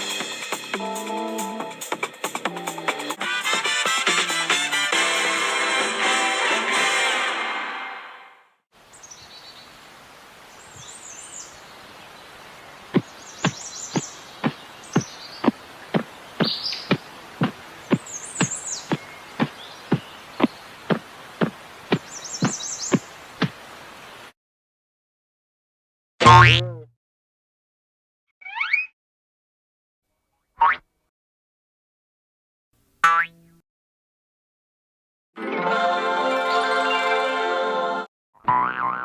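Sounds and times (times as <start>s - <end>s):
birds chirping: 8.8s - 24.3s
outdoor background hiss: 8.8s - 24.3s.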